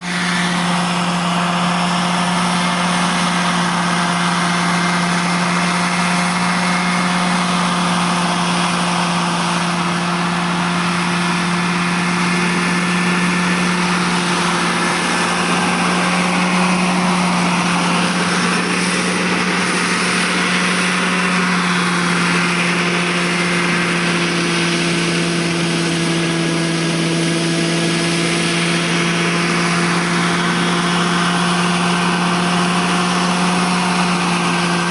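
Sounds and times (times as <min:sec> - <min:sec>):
model helicopter humming and whining: 0:00.0 - 0:34.9.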